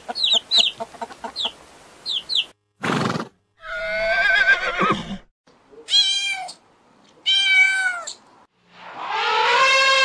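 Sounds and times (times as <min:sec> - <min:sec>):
cat meowing: 0:07.2 - 0:08.2.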